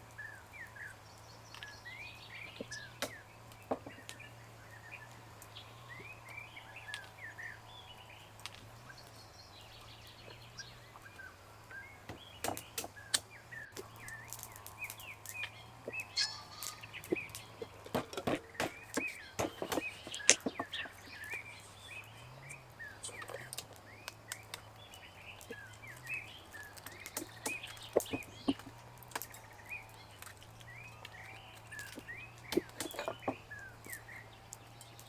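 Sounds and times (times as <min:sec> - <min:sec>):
small birds chirping: 0:00.0 - 0:35.0
sharp clicks and knocks: 0:12.1 - 0:21.4, 0:26.5 - 0:29.6, 0:31.8 - 0:35.0.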